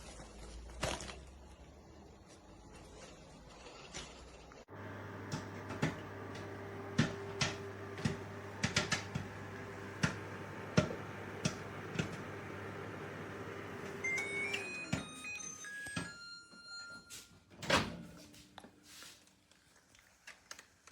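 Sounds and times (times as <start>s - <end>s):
microwave oven humming: 4.7s - 16.5s.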